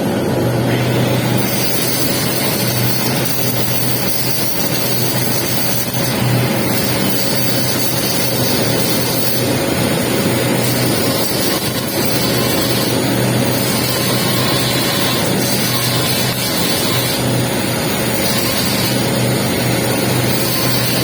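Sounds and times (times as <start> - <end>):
low machine hum: 0.0 - 21.0
welding arc crackling and hissing: 0.7 - 21.0.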